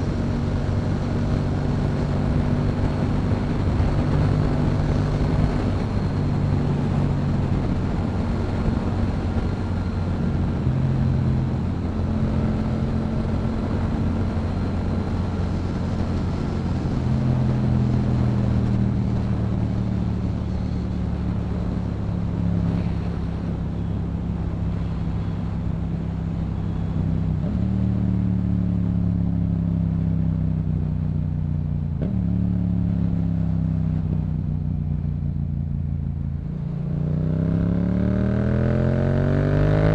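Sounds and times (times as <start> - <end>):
wind noise: 0.0 - 28.2
motorcycle engine cruising: 0.0 - 39.9.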